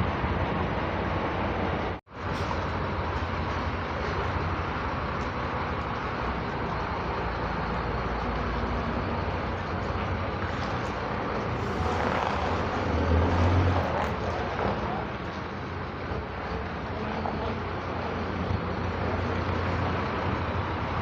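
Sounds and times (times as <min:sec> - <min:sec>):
coach engine and road rumble: 0:00.0 - 0:21.0.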